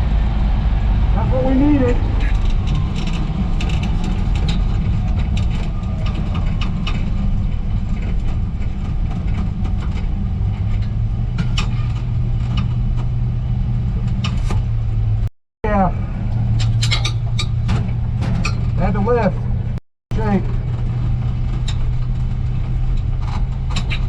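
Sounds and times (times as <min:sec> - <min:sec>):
car engine deep rumble: 0:00.0 - 0:24.0
clicks and rattles: 0:02.2 - 0:13.2, 0:20.2 - 0:24.0.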